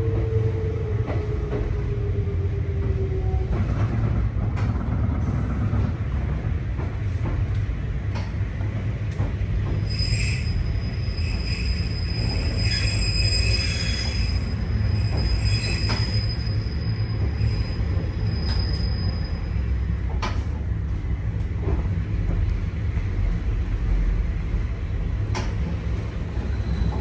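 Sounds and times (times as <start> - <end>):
low rumble of train running: 0.0 - 27.0
train wheels squealing: 9.6 - 20.0, 26.3 - 27.0.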